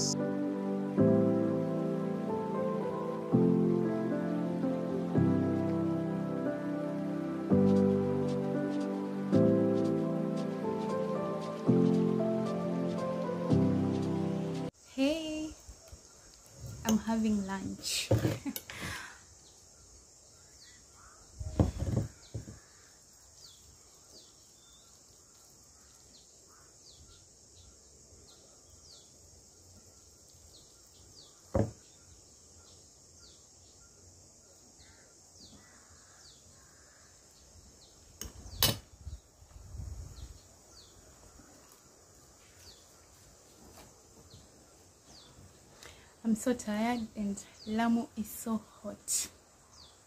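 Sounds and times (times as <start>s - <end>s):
steady high hiss: 0.0s - 50.0s
bird chirping: 19.4s - 39.4s.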